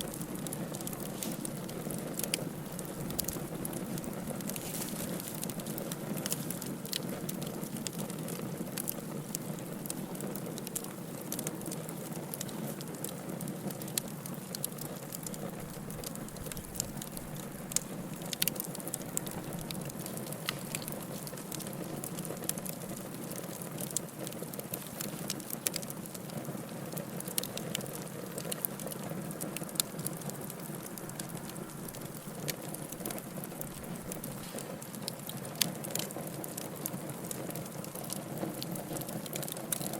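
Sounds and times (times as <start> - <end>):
fire hissing: 0.0 - 11.2, 15.0 - 23.9, 29.5 - 36.0
fire crackling and popping: 0.0 - 39.9.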